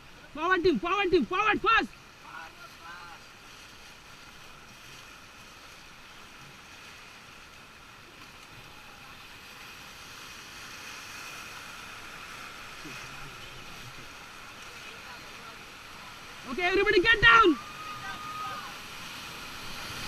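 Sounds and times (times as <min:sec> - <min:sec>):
river rapids rushing: 0:08.0 - 0:20.0.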